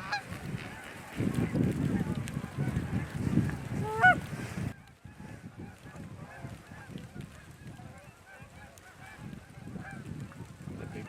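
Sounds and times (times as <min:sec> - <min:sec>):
geese honking: 0:00.0 - 0:04.2, 0:05.7 - 0:10.1.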